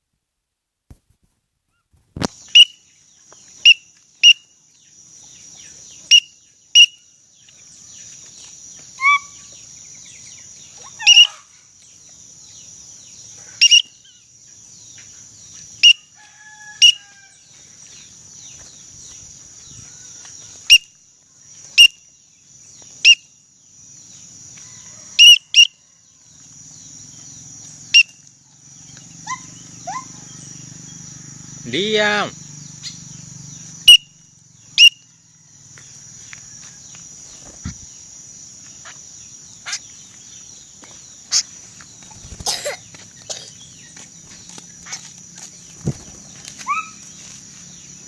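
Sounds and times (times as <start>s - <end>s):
lower chirps: 2.3s - 16.1s, 26.4s - 36.3s, 37.2s - 48.0s.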